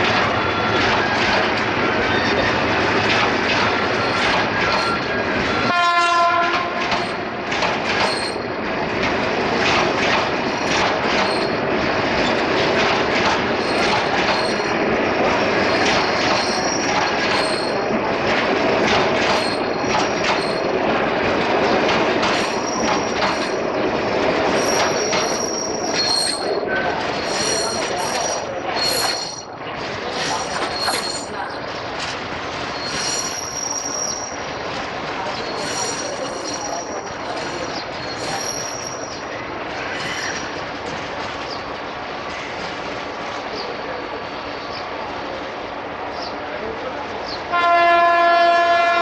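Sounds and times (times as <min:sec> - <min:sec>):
train wheels clattering: 0:00.0 - 0:41.7
wheel squeals: 0:03.9 - 0:05.7, 0:08.0 - 0:08.5, 0:10.6 - 0:11.6, 0:13.5 - 0:14.7, 0:15.7 - 0:17.9, 0:19.3 - 0:20.7, 0:22.2 - 0:23.6, 0:24.5 - 0:31.7, 0:32.6 - 0:34.6, 0:35.2 - 0:39.3, 0:39.9 - 0:40.6
train horn: 0:05.6 - 0:06.8, 0:47.5 - 0:49.0.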